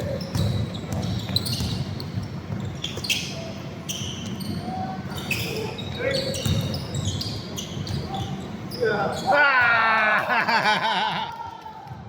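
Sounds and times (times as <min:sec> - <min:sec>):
basketball bouncing on court: 0:00.0 - 0:03.1, 0:06.4 - 0:07.2.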